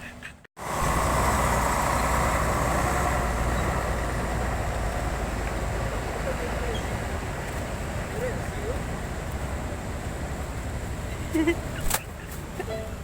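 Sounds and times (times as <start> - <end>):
vehicle engine running: 0.6 - 13.0.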